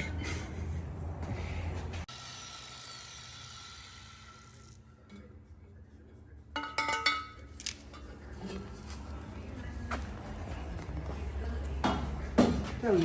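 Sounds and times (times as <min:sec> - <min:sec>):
metal clinking and clanking: 0:06.6 - 0:09.0.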